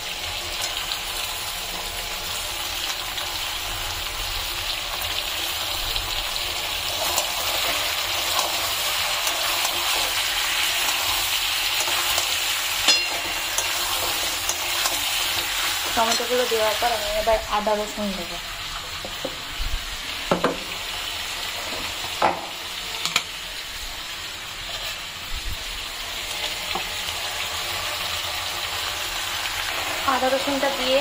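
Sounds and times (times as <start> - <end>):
food sizzling in hot oil: 0.0 - 31.0
metal spatula scraping pan: 9.2 - 16.5, 24.6 - 25.1
spatula clanking on pan: 11.7 - 16.4.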